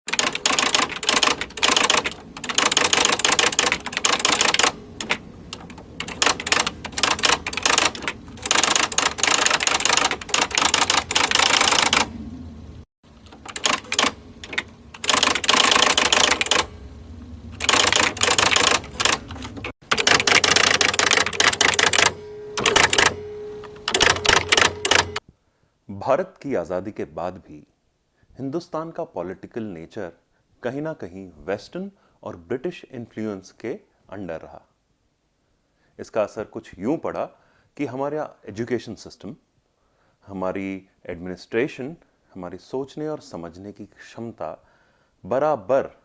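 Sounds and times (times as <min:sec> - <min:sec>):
typewriter keys clattering: 0:00.1 - 0:12.1, 0:13.3 - 0:16.7, 0:17.6 - 0:23.2, 0:23.9 - 0:25.2.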